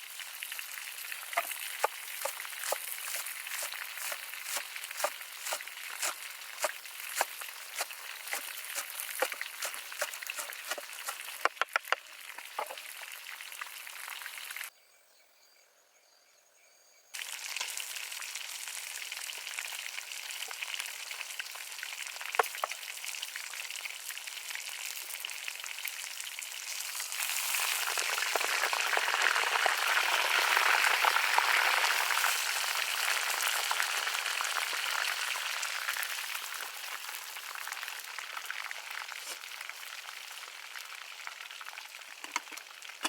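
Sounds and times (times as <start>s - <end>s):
food sizzling in hot oil: 0.0s - 14.7s, 17.2s - 43.0s
oil popping: 1.2s - 13.8s, 22.4s - 22.8s.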